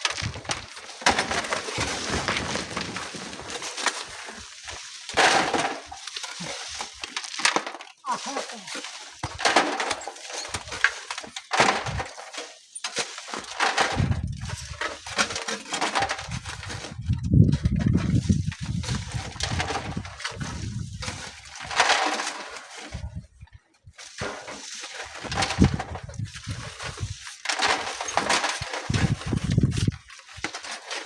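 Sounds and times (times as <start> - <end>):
wind buffeting microphone: 13.9 - 14.8, 16.2 - 21.1, 28.9 - 30.0.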